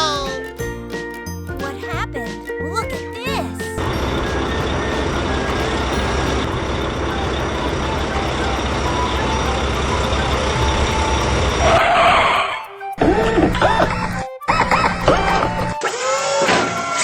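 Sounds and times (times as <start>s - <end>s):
truck engine rumbling: 3.4s - 12.4s
warbling cartoon sound: 7.2s - 17.0s.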